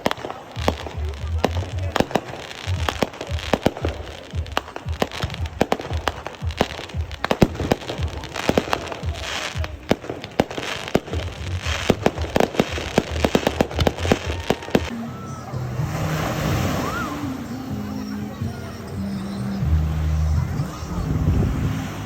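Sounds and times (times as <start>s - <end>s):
fireworks bangs and crackles: 0.0s - 15.0s
fireworks hissing crackle: 0.0s - 22.0s.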